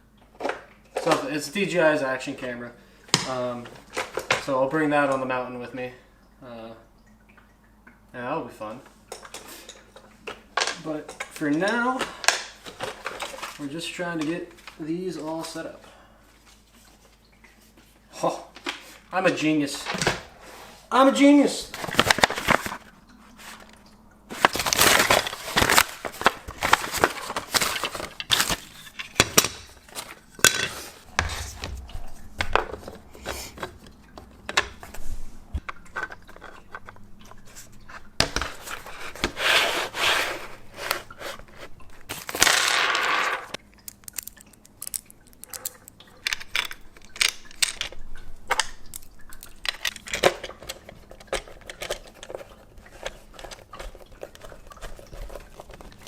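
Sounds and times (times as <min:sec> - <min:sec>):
plastic clatter: 0:21.7 - 0:35.0, 0:35.6 - 0:56.0
rustling and scraping: 0:21.7 - 0:43.6, 0:48.9 - 0:56.0.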